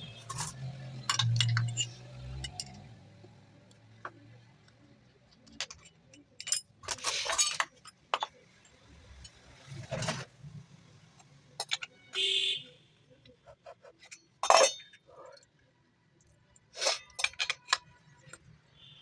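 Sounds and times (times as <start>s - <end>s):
metal clinks and knocks: 0.1s - 3.0s, 5.4s - 10.2s, 14.0s - 15.4s, 16.8s - 18.6s.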